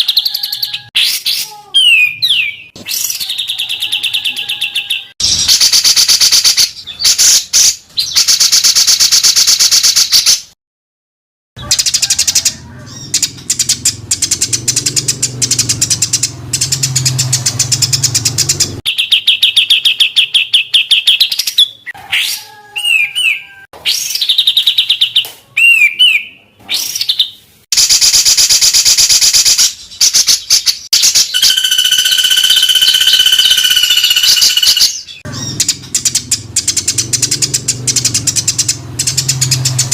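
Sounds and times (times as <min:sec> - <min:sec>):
slurred whistled bird notes: 0:00.0 - 0:08.8, 0:30.0 - 0:39.6
songbird song: 0:29.8 - 0:39.9.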